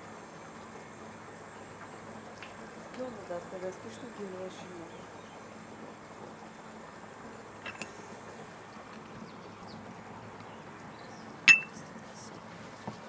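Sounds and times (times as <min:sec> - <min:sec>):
faint background noise: 0:00.0 - 0:13.0
sharp ringing clink: 0:11.5 - 0:11.8.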